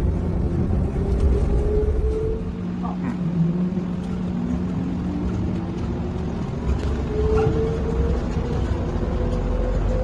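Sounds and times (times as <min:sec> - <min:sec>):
train cabin rumble: 0:00.0 - 0:10.0.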